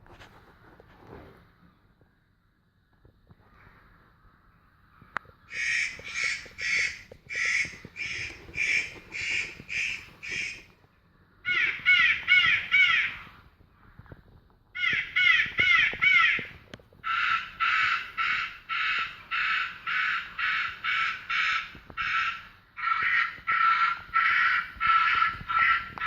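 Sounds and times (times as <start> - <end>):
rook cawing: 5.5 - 10.7, 11.4 - 13.4, 14.8 - 26.0.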